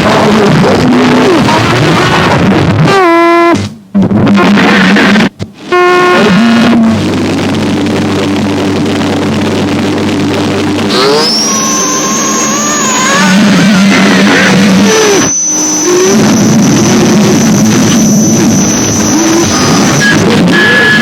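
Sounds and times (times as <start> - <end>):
distorted noise music: 0.0 - 21.0
high whine: 0.0 - 21.0
wavering squealing tones: 10.9 - 21.0.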